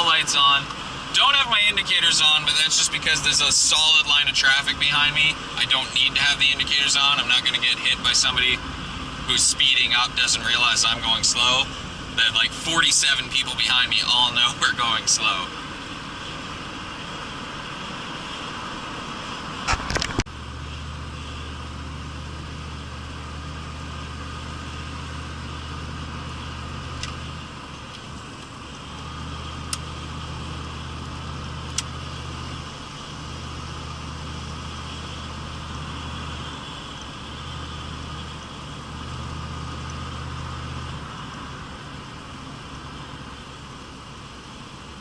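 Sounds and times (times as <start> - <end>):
car engine and road noise: 0.0 - 45.0
low hum: 0.6 - 45.0
sharp clicks: 27.0 - 27.2.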